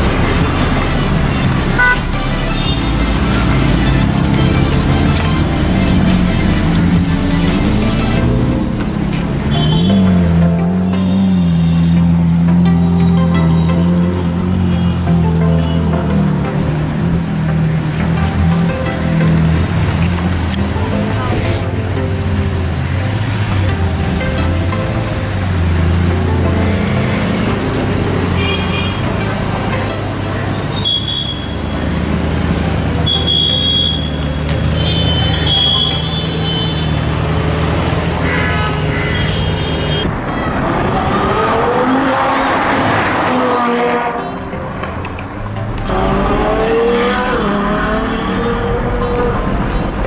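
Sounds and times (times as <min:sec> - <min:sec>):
engine revving up: 0:00.0 - 0:30.7, 0:34.1 - 0:44.2, 0:45.4 - 0:50.0
car engines in street traffic: 0:00.0 - 0:50.0.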